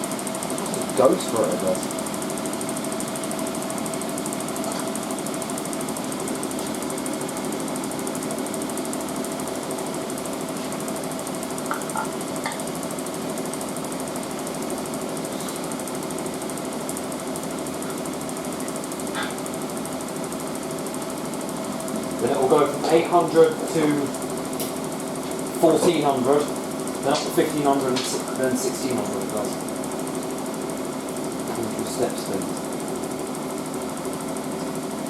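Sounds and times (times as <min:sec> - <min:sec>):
washing machine spinning: 0:00.0 - 0:35.0.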